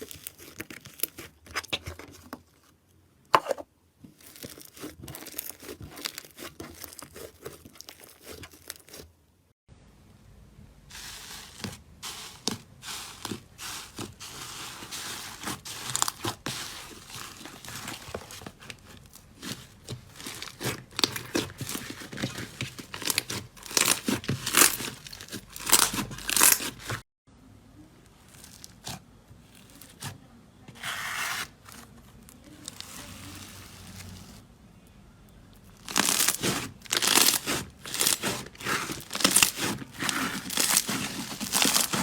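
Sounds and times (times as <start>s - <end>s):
slime crackling and popping: 4.2s - 9.0s, 15.4s - 27.0s, 35.8s - 42.0s.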